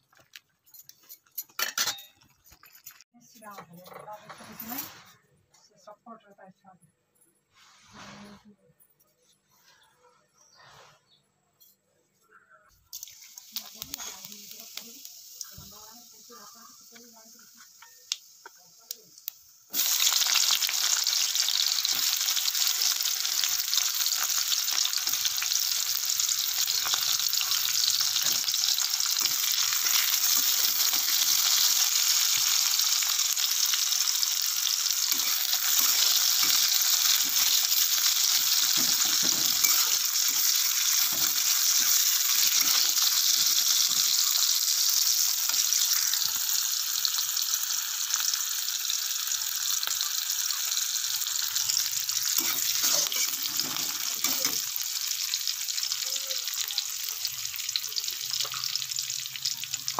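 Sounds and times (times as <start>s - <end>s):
onions sizzling in oil: 12.9s - 59.9s
metal spatula scraping pan: 34.9s - 44.3s, 51.7s - 54.6s.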